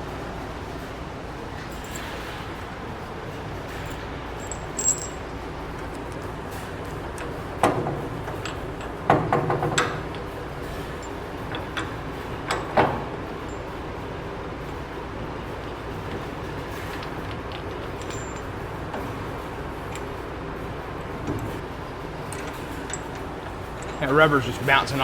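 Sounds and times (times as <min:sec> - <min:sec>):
metal parts clinking and knocking: 0:03.7 - 0:06.3, 0:16.0 - 0:20.2
steady background hiss: 0:18.0 - 0:25.0.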